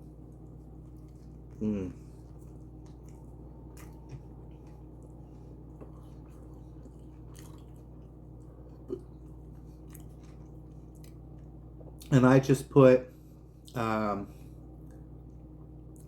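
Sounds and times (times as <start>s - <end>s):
steady low hum: 0.0s - 16.0s
person chewing: 0.1s - 12.1s.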